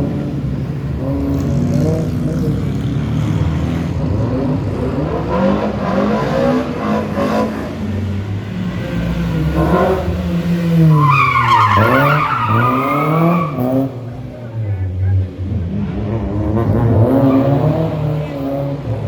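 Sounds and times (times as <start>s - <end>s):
rally car engine revving: 0.0s - 19.0s
tyres squealing: 10.8s - 14.1s.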